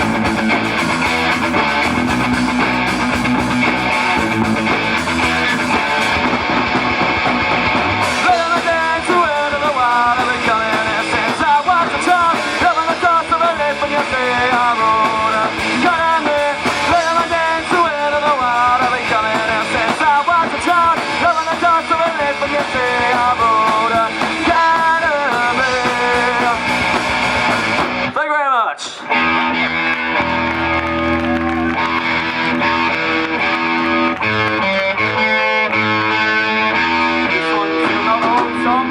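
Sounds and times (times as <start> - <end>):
lead guitar bending notes: 0.0 - 11.4, 29.0 - 38.9
rock band playing: 0.0 - 28.2, 29.0 - 38.9.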